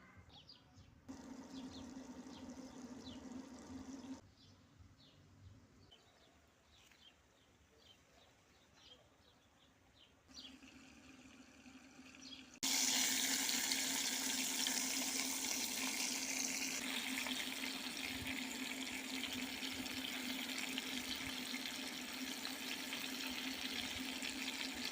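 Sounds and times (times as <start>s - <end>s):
running water rushing: 10.4s - 24.9s.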